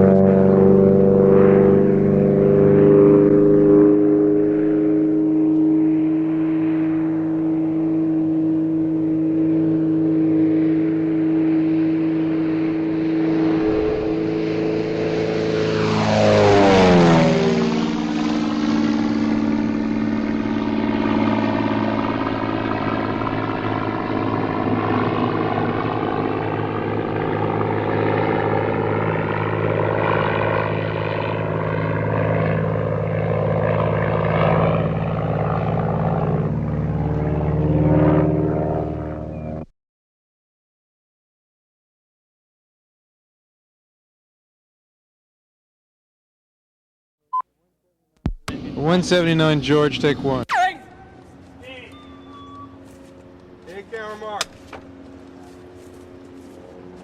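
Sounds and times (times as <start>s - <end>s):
vehicle engine passing by: 0.0s - 28.5s.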